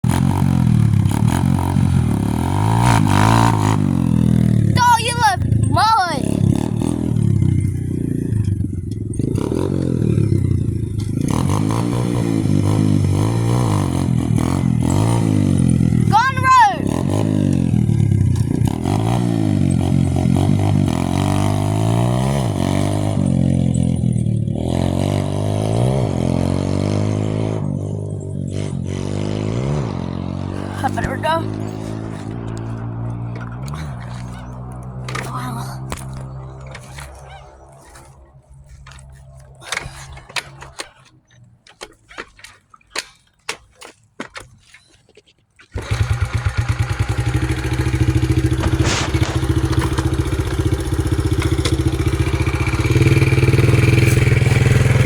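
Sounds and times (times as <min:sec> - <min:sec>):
dirt bike engine running hard: 0:00.0 - 0:41.0, 0:45.7 - 0:55.0
sharp clicks and knocks: 0:32.0 - 0:45.8.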